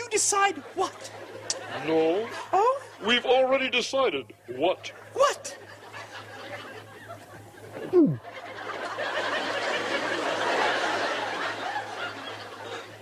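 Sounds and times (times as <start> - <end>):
audience laughter: 5.6 - 13.0.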